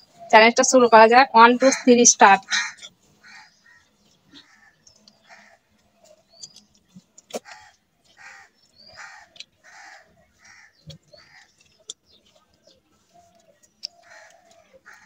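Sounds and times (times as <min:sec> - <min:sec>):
crow cawing: 0:01.6 - 0:05.6, 0:07.4 - 0:11.5, 0:14.0 - 0:15.0.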